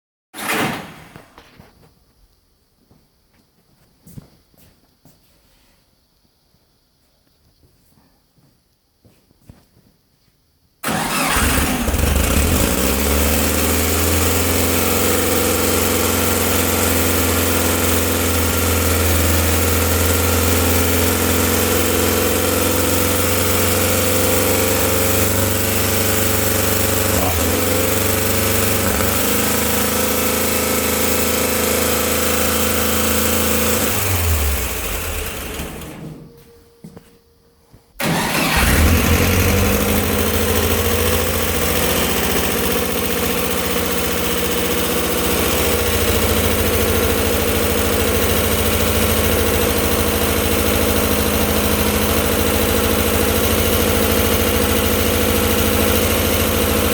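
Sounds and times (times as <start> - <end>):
car engine starting and running: 10.8 - 36.3, 38.0 - 56.9.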